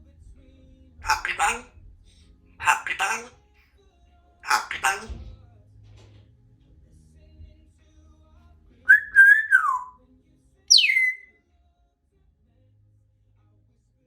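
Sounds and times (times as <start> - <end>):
parrot whistling: 1.0 - 1.7, 2.6 - 3.3, 4.5 - 5.1, 8.9 - 10.0, 10.7 - 11.3.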